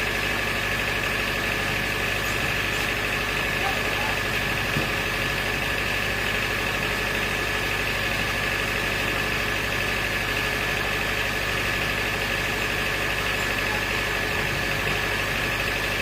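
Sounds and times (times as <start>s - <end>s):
high machine whine: 0.0s - 6.2s
pulsing motor hum: 0.0s - 16.0s.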